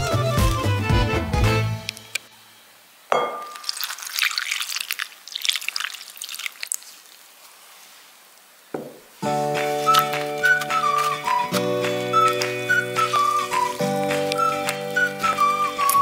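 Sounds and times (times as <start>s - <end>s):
glassy clink: 3.1s - 4.0s
milk splashing and trickling: 3.4s - 7.7s.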